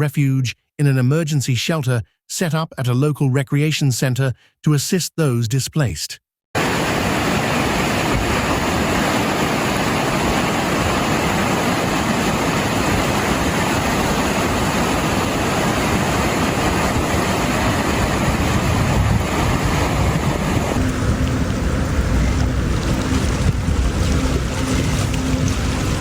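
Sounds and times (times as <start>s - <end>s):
floodwater rushing: 6.6s - 26.0s.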